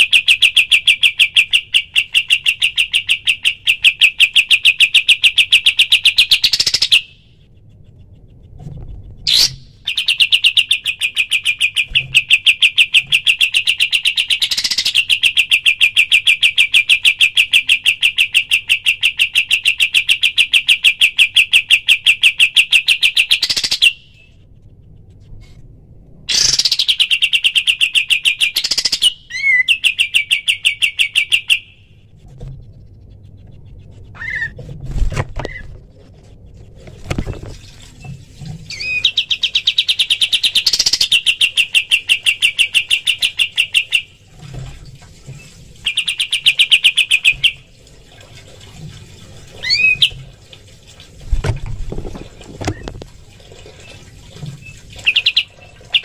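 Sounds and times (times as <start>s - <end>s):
short upswept bird calls: 33.0s - 34.6s.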